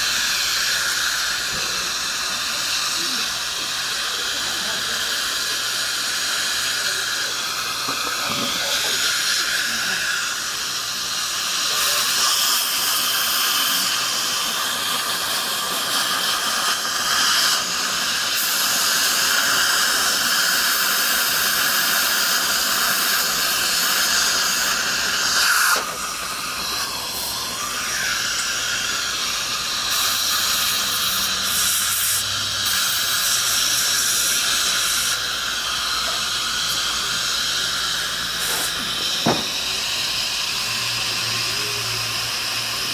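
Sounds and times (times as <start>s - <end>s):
dental equipment hissing: 0.0s - 42.9s.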